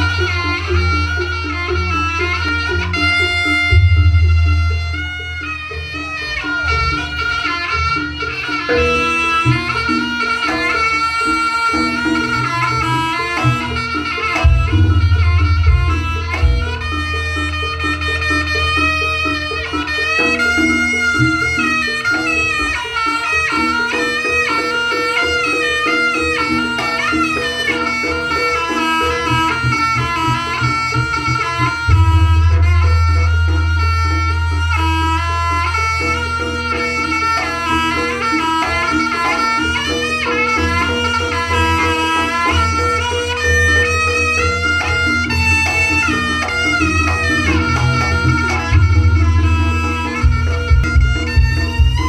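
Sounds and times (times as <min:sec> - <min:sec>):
gamelan pattern: 0:00.0 - 0:52.0
reed shawm melody: 0:00.0 - 0:52.0
deep drums: 0:03.3 - 0:05.7, 0:14.3 - 0:17.9, 0:31.8 - 0:35.8, 0:47.6 - 0:52.0.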